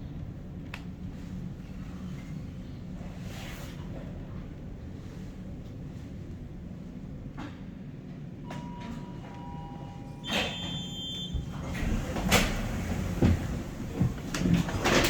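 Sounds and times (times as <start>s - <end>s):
cable car rumbling: 0.0s - 15.0s
high ringing tone: 8.5s - 11.4s.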